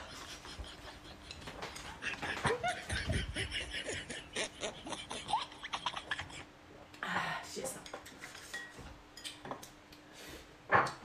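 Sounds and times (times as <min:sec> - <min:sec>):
woman snickering: 0:00.0 - 0:06.5.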